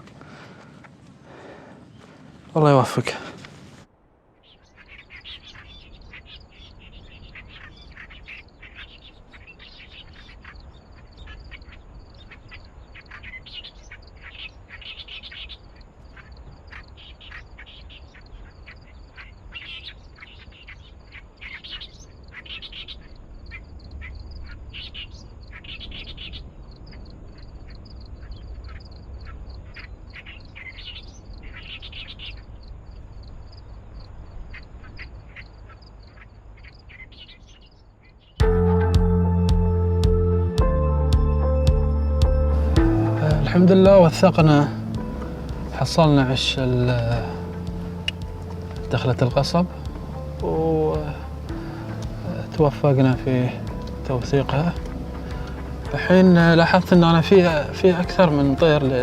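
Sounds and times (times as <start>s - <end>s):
warbler singing harsh chatter: 4.4s - 32.6s, 42.6s - 59.0s
low rumble: 38.4s - 58.9s.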